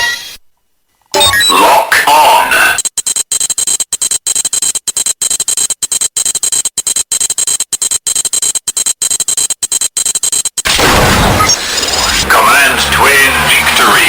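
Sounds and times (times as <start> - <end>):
toy belt electronic standby loop: 2.8 - 10.7.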